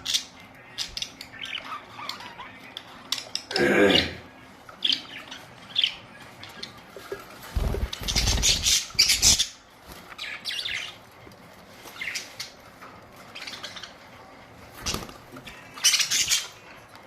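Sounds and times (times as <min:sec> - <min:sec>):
budgerigars chirping: 0:00.0 - 0:03.5, 0:07.6 - 0:11.0, 0:14.8 - 0:16.8.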